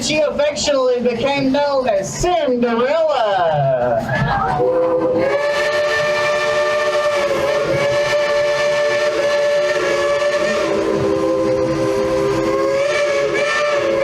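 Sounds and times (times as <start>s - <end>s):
steam locomotive whistle chord: 4.6s - 14.0s.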